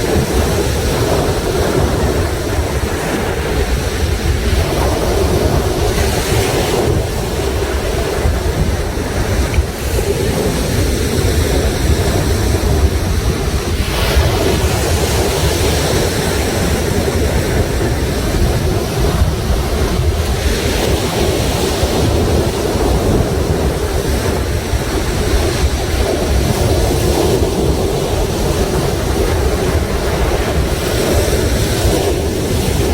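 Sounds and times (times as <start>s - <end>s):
waves breaking on rocky shore: 0.0s - 32.9s
wind buffeting microphone: 0.0s - 32.9s.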